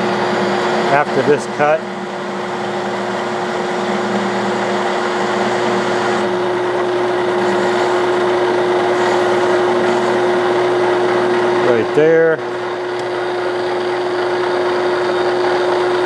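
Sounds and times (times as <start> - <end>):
metal lathe humming and whining: 0.0 - 16.0.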